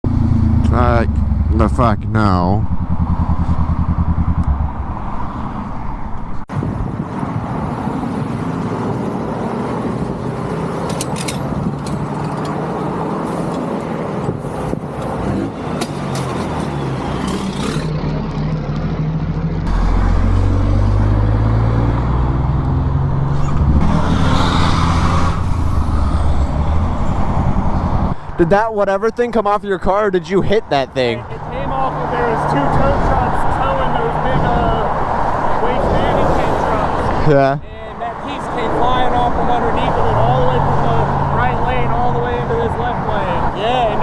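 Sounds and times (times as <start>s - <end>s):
low engine rumble: 0.0s - 7.0s
highway traffic: 0.0s - 44.0s.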